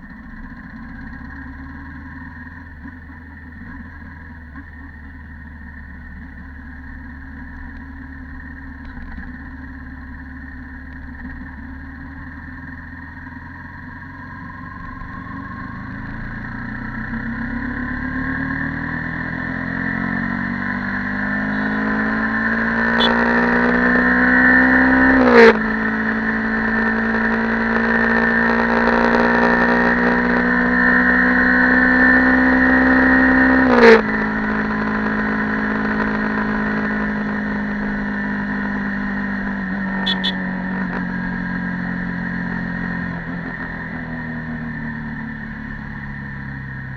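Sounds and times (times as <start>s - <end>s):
motorcycle engine accelerating: 0.0s - 46.9s
engine blip on upshift: 22.8s - 23.5s, 39.9s - 40.9s.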